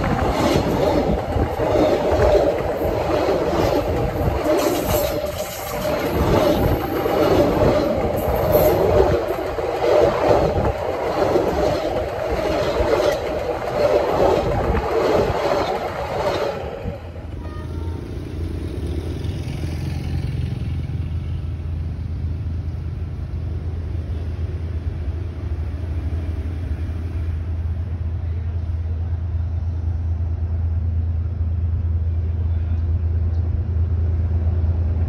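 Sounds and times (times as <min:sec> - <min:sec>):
train wheels clattering on rails: 0:00.0 - 0:17.4.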